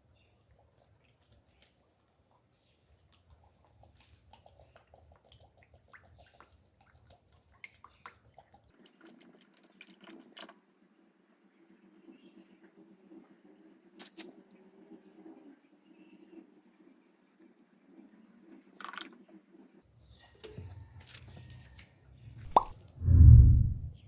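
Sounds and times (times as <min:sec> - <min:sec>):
liquid dripping and trickling: 0:00.8 - 0:11.8.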